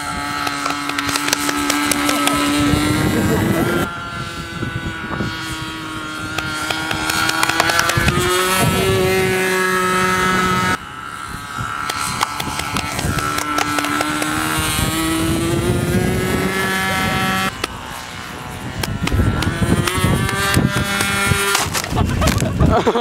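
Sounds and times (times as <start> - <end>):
model airplane engine: 0.0 - 23.0
sharp clicks: 0.3 - 2.6, 6.3 - 8.4, 11.8 - 14.4.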